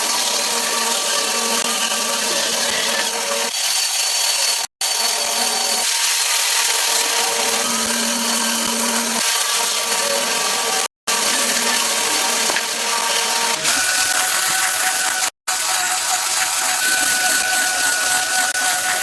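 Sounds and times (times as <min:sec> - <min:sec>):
power tool hissing on wood: 0:09.2 - 0:19.0.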